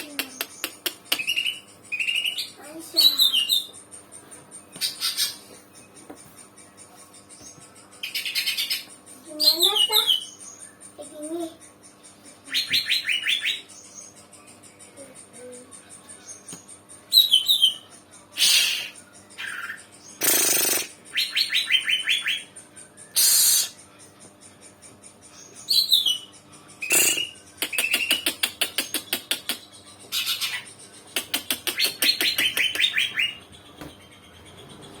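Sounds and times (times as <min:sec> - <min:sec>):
bird singing: 0:00.0 - 0:35.0
raspy hissing bird calls: 0:18.4 - 0:19.0, 0:20.1 - 0:21.0, 0:23.1 - 0:23.8, 0:26.8 - 0:29.7.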